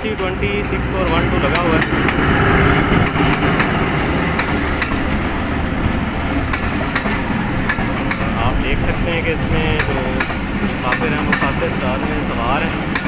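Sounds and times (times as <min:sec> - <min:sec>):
diesel locomotive engine running: 0:00.0 - 0:13.0
train coaches rumbling by: 0:00.0 - 0:13.0
wheels clicking on rails: 0:00.0 - 0:13.0.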